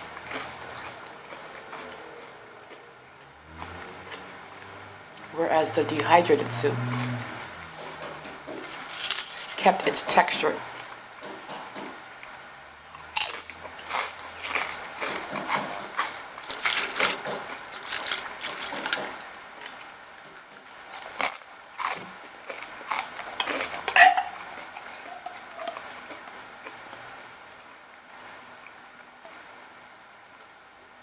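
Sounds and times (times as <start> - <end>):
crackles and clicks: 10.7 - 29.5
person chewing and biting: 12.9 - 19.1, 20.6 - 27.1.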